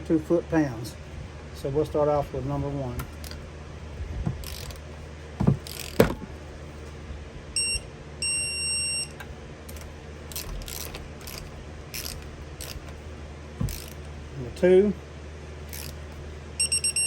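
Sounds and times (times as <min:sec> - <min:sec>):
wrench clanking on bolt: 0:04.3 - 0:04.8, 0:05.4 - 0:06.2, 0:09.7 - 0:13.0, 0:13.6 - 0:14.0
electronic beeps: 0:16.6 - 0:17.0.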